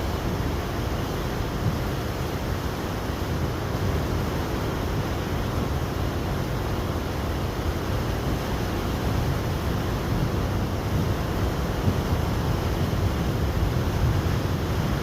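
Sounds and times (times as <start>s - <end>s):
floodwater rushing roar: 0.0s - 15.0s.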